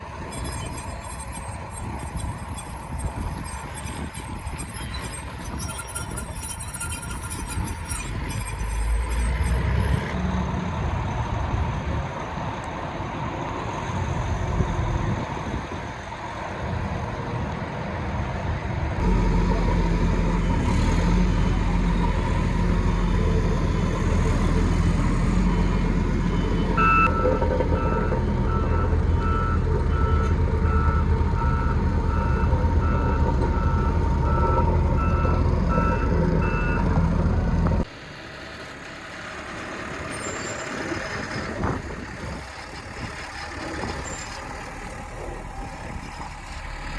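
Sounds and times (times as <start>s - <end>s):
diesel engine of earthmover: 0.0s - 18.0s, 18.8s - 46.9s.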